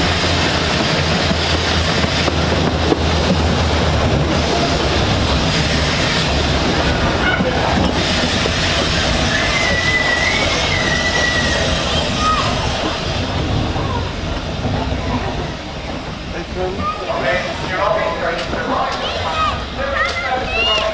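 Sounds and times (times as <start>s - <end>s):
miniature train rumbling: 0.0s - 20.9s
high-pitched wheel squeal: 7.2s - 13.0s.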